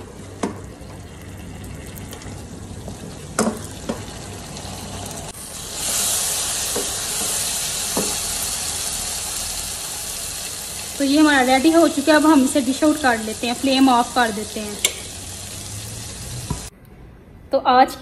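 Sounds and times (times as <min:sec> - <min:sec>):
food sizzling in a pan: 0:02.7 - 0:16.7
wooden spoon knocking pan: 0:06.7 - 0:08.2.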